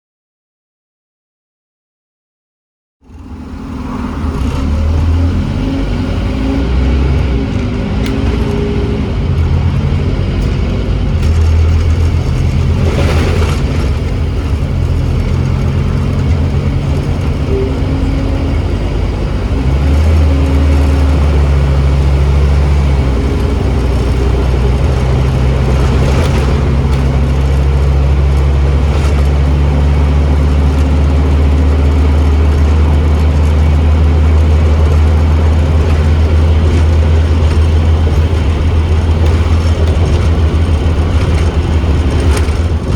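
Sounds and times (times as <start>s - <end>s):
bus diesel engine pulling: 3.0s - 42.9s.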